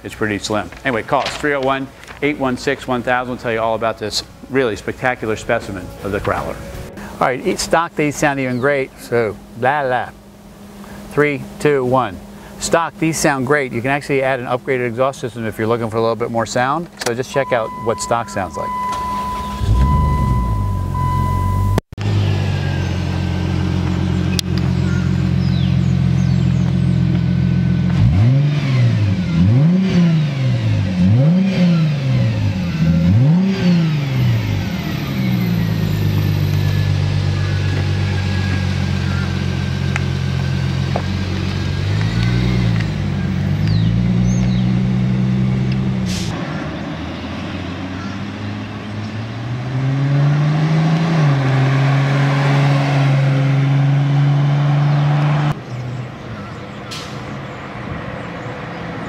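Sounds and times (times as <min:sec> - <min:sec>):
car engine revving: 0:17.3 - 0:56.0
car accelerating away: 0:17.7 - 0:59.0.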